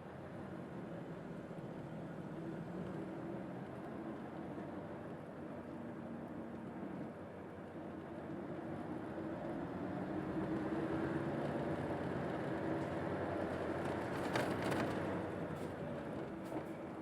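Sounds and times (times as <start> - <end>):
bus engine hum: 7.8 - 17.0.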